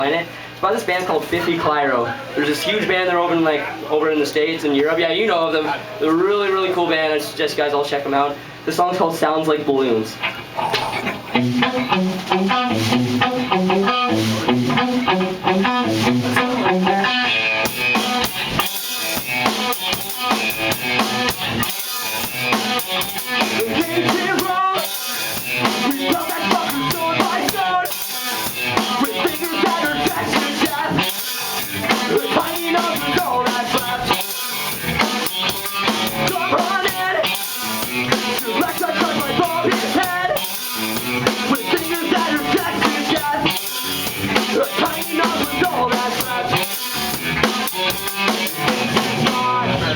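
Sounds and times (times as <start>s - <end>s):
guitar riff: 10.2s - 49.9s
rock band playing instrumental: 11.2s - 49.9s.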